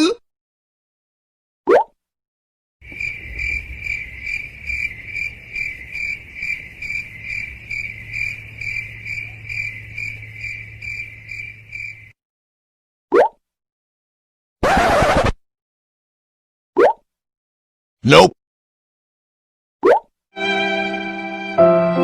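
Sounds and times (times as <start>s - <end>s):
crickets chirping: 2.8s - 12.2s.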